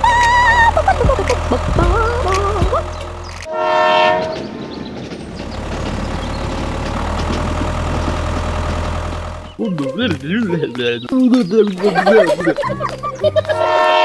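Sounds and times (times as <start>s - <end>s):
steady hum: 0.0s - 3.5s
horn blast: 0.0s - 9.6s.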